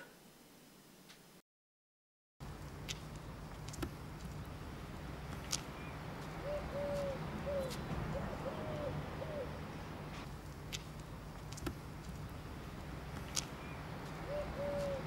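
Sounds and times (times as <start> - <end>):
steady low hum: 2.4 - 15.0
pigeon cooing: 6.3 - 10.2, 13.6 - 15.0.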